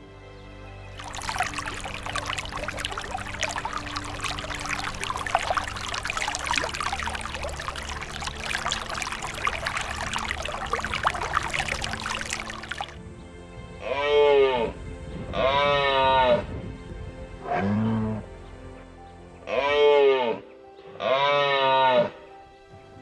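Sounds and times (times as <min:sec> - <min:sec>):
water pouring and splashing: 0:00.9 - 0:13.0.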